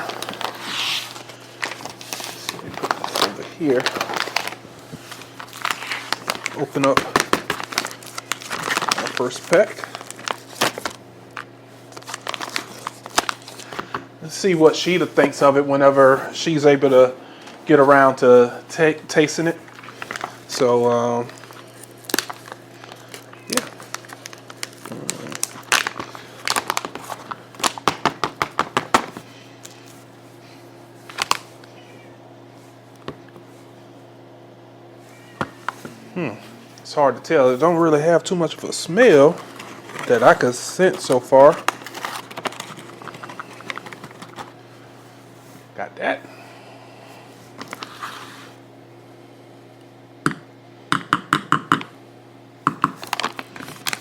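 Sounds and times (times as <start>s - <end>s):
packet crinkling: 0.0s - 15.4s, 19.1s - 30.0s, 31.0s - 31.7s, 36.6s - 44.7s, 47.6s - 48.1s, 52.7s - 54.0s
low steady hum: 0.0s - 54.0s.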